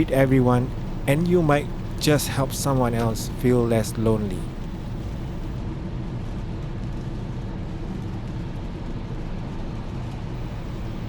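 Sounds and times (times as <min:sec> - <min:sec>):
car engine and tyre rumble: 0:00.0 - 0:05.6, 0:10.4 - 0:11.0.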